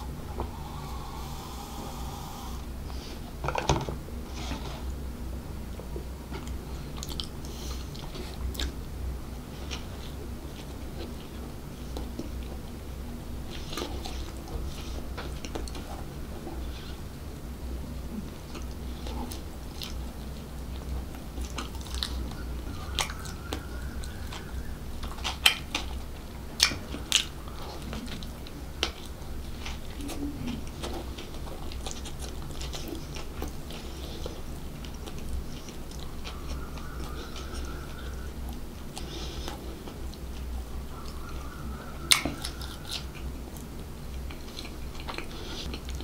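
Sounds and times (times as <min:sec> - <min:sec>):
steady low hum: 0:00.0 - 0:46.0
biting and chewing bread: 0:18.1 - 0:46.0.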